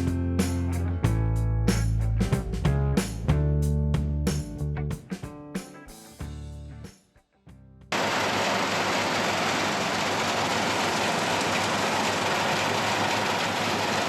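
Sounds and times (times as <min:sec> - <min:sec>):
harvester machine running: 0:08.0 - 0:14.0.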